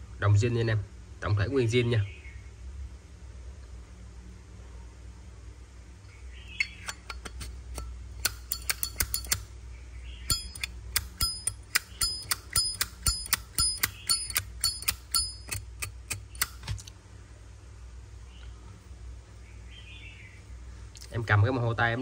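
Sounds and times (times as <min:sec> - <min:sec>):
metal lighter clicking: 0:07.8 - 0:09.5, 0:10.3 - 0:16.7.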